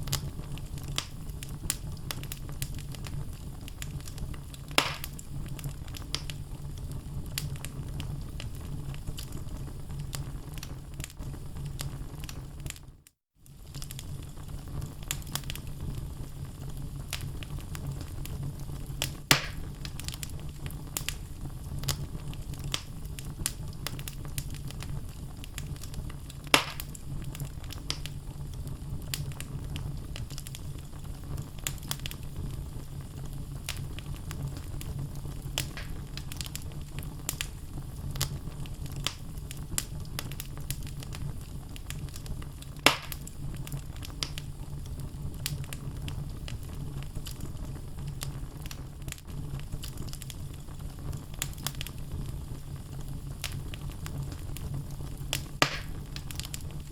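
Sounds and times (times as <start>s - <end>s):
fire rumbling: 0.0s - 56.9s
wood crackling and popping: 0.0s - 56.9s
loud wood snaps: 4.8s - 5.2s, 19.3s - 19.6s, 26.5s - 27.0s, 35.6s - 36.0s, 42.9s - 43.2s, 55.6s - 56.5s.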